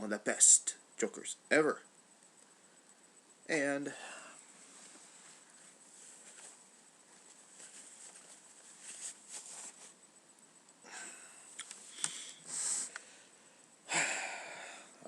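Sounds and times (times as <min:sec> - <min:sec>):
small clicks: 0:11.5 - 0:12.2
person sniffing: 0:11.8 - 0:13.2.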